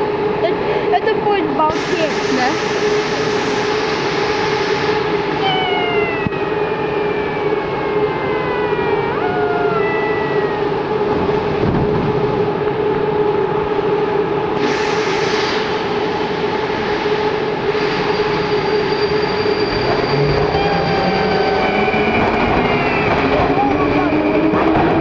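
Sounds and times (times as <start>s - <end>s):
train motors humming: 0.0s - 25.0s
hiss: 1.7s - 5.1s, 14.6s - 19.5s.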